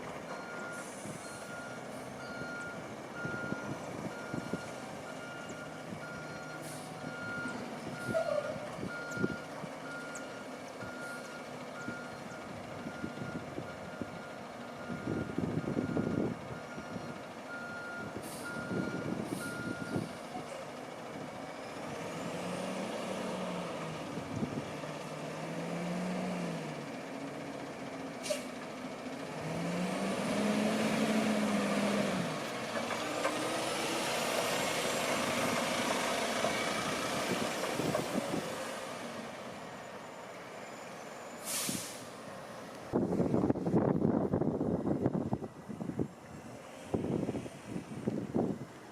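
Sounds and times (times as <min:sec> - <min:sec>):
diesel engine revving: 0:00.0 - 0:48.9
reversing alarm beeping: 0:00.3 - 0:20.1
air brake hissing: 0:28.2 - 0:28.6, 0:41.4 - 0:42.2.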